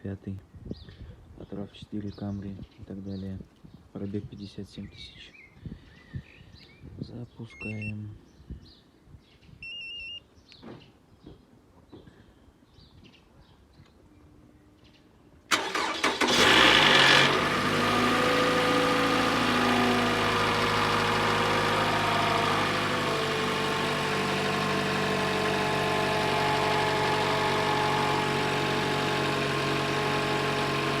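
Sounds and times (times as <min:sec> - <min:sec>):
starter cranking: 0:15.5 - 0:18.0
car engine idling: 0:15.5 - 0:31.0.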